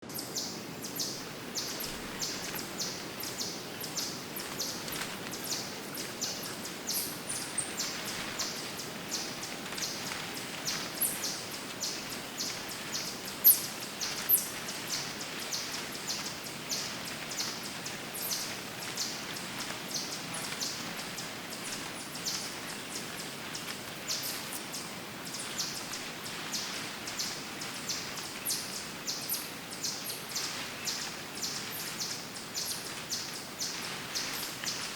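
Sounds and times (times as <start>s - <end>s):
small birds chirping: 0.0s - 34.9s
steady background hiss: 0.0s - 34.9s.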